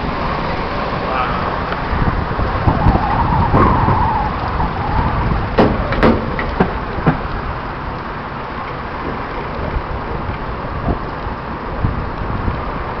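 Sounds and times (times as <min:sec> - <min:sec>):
wavering whine: 0:00.0 - 0:05.9
car engine and tyre rumble: 0:00.0 - 0:13.0.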